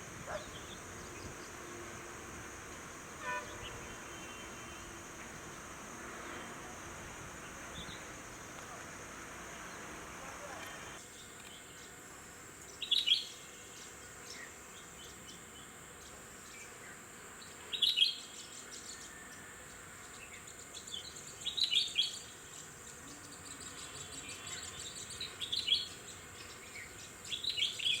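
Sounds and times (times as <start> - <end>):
high-pitched hiss: 0.0 - 14.6.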